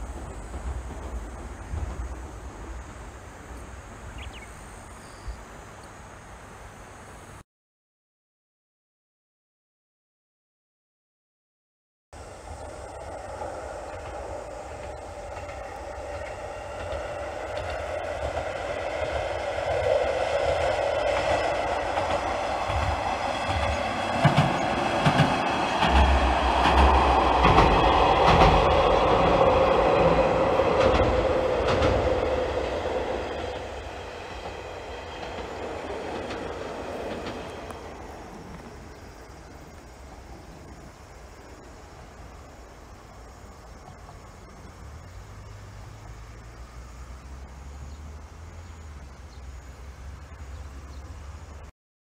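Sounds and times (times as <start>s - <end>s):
wheels clacking over rail joints: 0.0s - 4.4s, 12.2s - 43.2s
diesel railcar running past: 0.0s - 7.4s, 12.2s - 51.7s.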